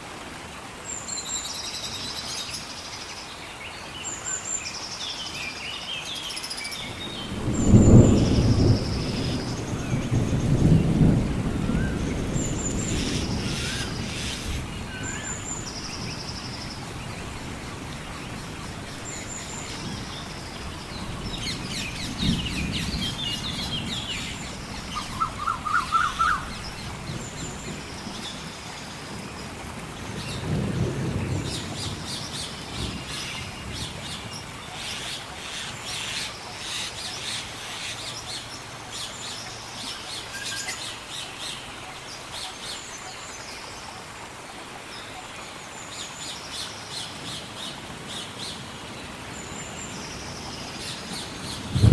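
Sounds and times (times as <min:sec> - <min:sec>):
rain falling in a forest: 0:00.0 - 0:51.9
birds calling: 0:06.6 - 0:29.0
thunder rumbling: 0:06.8 - 0:15.0, 0:19.6 - 0:25.8, 0:51.5 - 0:51.9.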